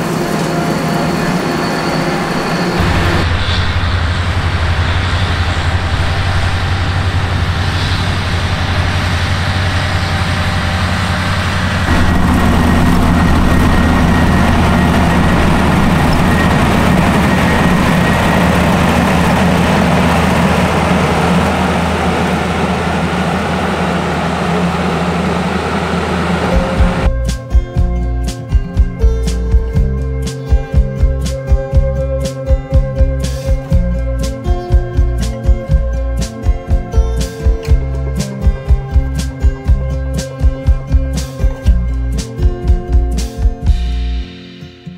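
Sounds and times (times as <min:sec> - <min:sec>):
harvester engine drone: 0:00.0 - 0:30.4.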